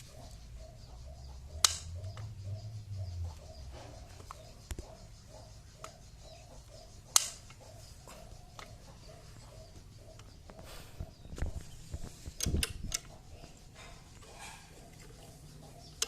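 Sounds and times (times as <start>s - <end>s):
tools clicking on metal: 12.3s - 15.2s.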